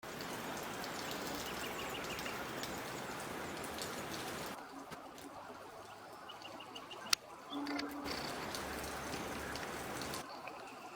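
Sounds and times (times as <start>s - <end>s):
rain falling: 0.0s - 10.9s.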